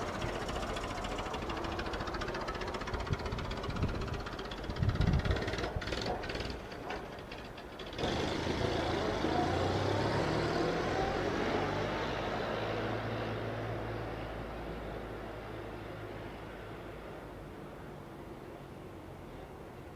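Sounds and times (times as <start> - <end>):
truck engine running: 0.0 - 10.4.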